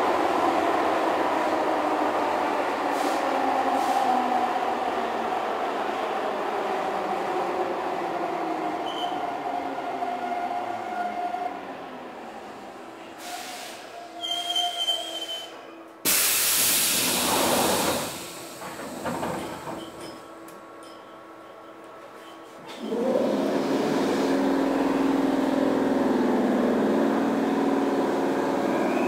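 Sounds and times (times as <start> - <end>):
train running noise: 13.1 - 29.0
brake squeal: 13.2 - 15.6
compressed air hiss: 16.1 - 19.1.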